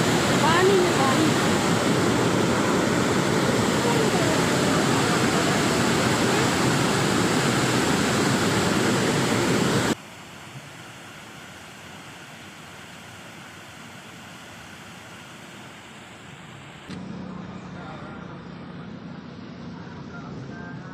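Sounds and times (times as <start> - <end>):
rush of falling water: 0.0 - 16.9.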